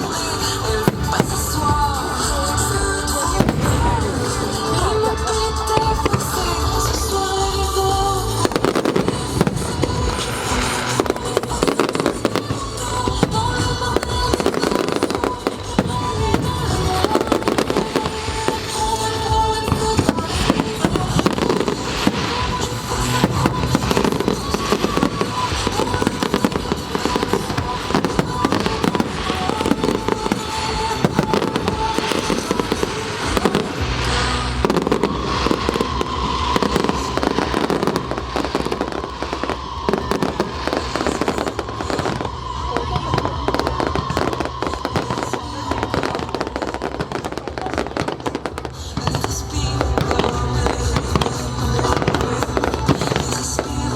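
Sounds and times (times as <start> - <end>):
fireworks bursting and crackling: 0.0 - 53.9
music soundtrack: 0.0 - 53.9.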